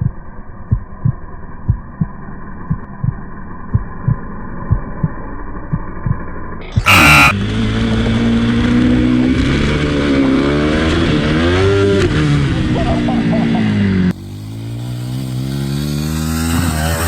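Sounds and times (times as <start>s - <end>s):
low heartbeat-like thumping: 0.0s - 6.4s
dirt bike engine revving: 6.7s - 17.0s
short loud burst: 6.8s - 7.4s.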